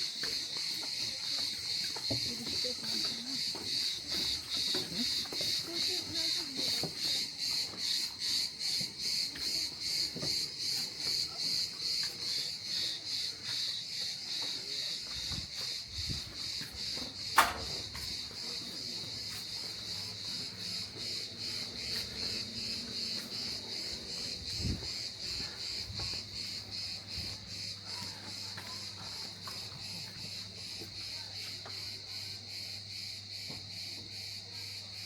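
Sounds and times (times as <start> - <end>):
insects chirring: 0.0 - 35.0
sharp click: 17.4 - 17.7.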